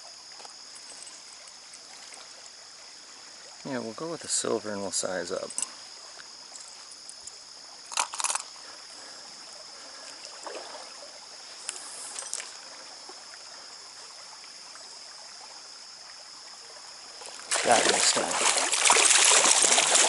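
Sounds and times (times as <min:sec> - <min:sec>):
stream flowing: 0:00.0 - 0:20.0
metallic clicks of fishing tackle: 0:05.4 - 0:05.8, 0:06.5 - 0:08.6.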